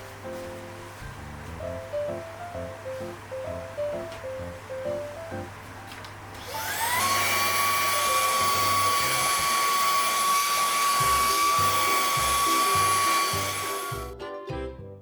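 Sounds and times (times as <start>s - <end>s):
vacuum cleaner motor whining: 6.3s - 14.1s.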